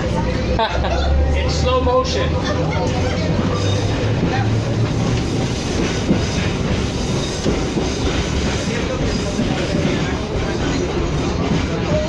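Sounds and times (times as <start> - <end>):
streetcar wheels rumbling: 0.0 - 12.0
wheels clacking over rail joints: 2.8 - 12.0.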